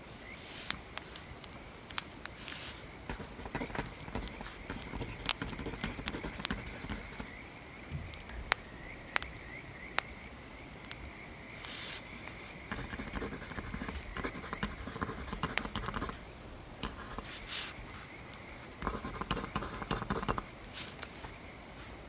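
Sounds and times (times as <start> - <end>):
pencil scratching on paper: 2.4 - 7.3, 12.6 - 16.2, 16.8 - 22.0.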